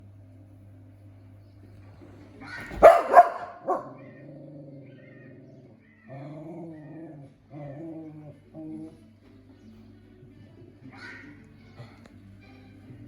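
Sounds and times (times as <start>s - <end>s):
dog barking: 2.4s - 4.2s.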